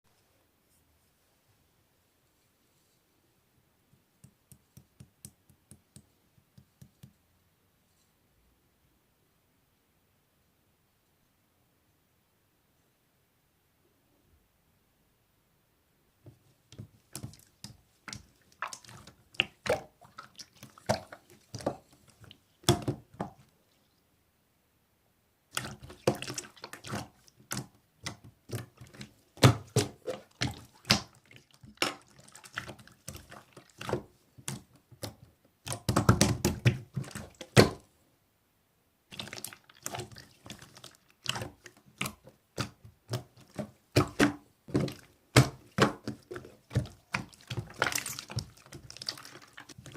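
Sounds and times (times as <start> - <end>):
slime squelching by hand: 16.3 - 23.9, 25.5 - 37.9, 39.1 - 49.9.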